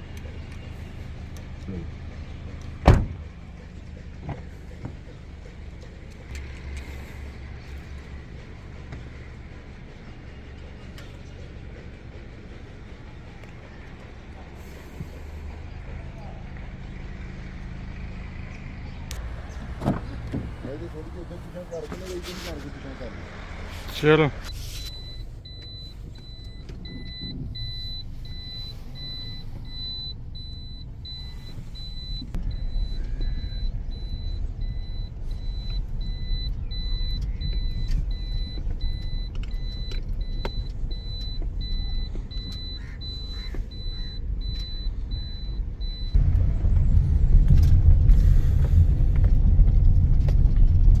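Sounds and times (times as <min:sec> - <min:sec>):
car engine running: 0:00.0 - 0:51.0
high warning chime beeping: 0:24.0 - 0:46.2.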